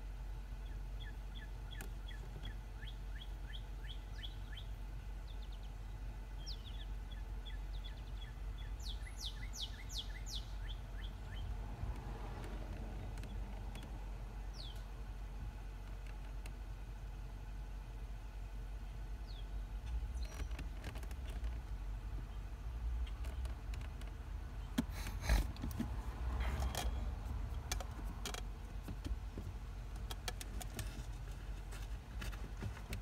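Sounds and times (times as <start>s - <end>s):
birds chirping: 0.4s - 11.7s, 12.5s - 15.6s, 18.5s - 25.4s
high downward-sweeping bird calls: 0.6s - 11.6s, 14.5s - 14.9s.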